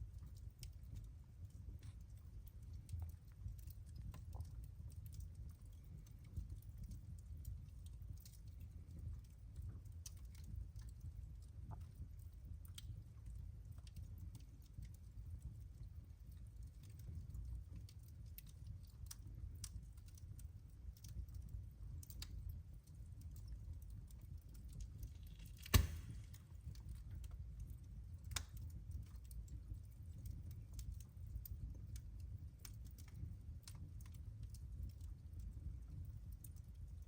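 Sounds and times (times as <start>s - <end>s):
wood fire crackling: 0.0s - 37.0s
loud pop from fire: 25.3s - 26.5s.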